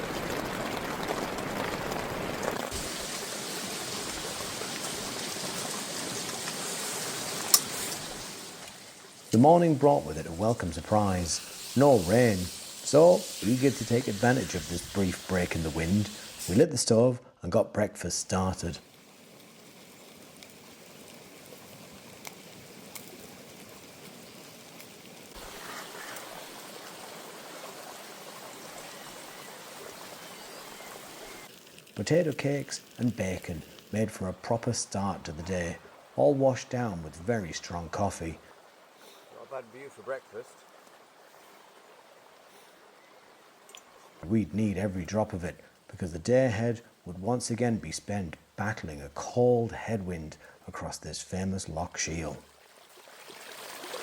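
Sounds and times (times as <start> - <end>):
steady rain falling: 0.0 - 16.7, 18.1 - 54.0
camp stove hissing: 2.6 - 16.6, 18.3 - 27.5.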